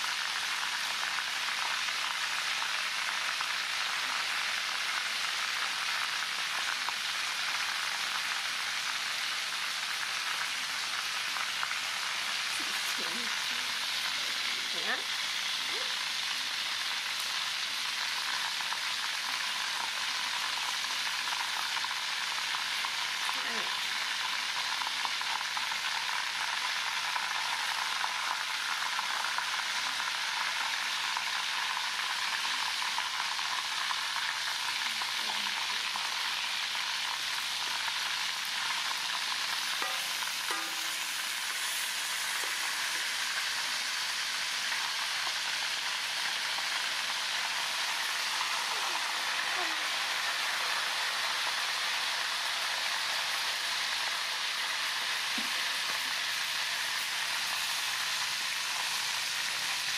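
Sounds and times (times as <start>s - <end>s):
food frying in hot oil: 0.0s - 59.9s.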